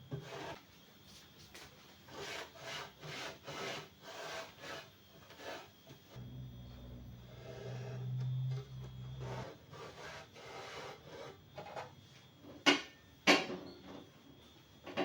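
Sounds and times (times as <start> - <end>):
low hum: 6.2 - 9.3.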